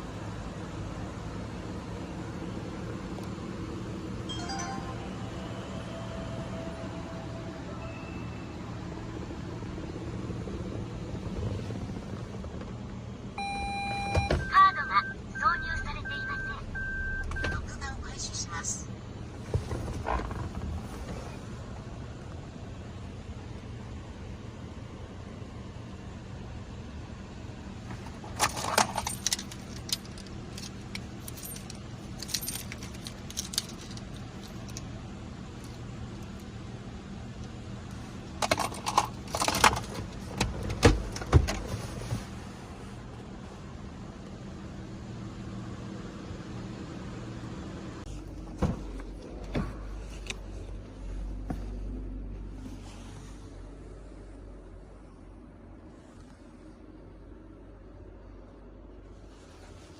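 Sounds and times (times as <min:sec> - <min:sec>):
car engine idling: 0:00.0 - 0:41.2
electronic beep: 0:13.4 - 0:17.7
keys jangling: 0:28.3 - 0:34.8.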